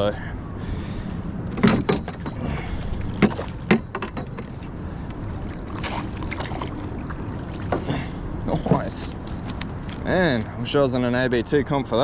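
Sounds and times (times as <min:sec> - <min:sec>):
wind: 0:00.0 - 0:12.0
sharp knocks and clatter: 0:01.5 - 0:02.4, 0:03.2 - 0:04.6
water noise: 0:01.5 - 0:10.1.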